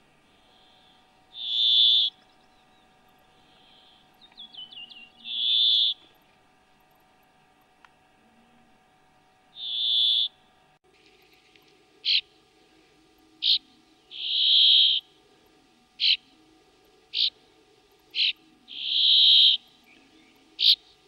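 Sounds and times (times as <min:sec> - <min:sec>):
small bird calling: 0:00.3 - 0:06.2, 0:09.5 - 0:10.5, 0:12.0 - 0:21.0.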